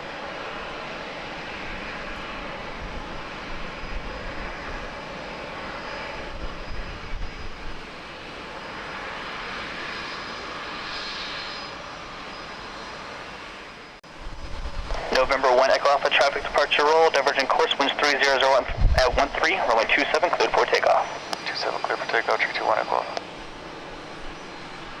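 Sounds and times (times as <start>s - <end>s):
jet engines rushing: 0.0s - 25.0s
faint high whine: 13.8s - 25.0s.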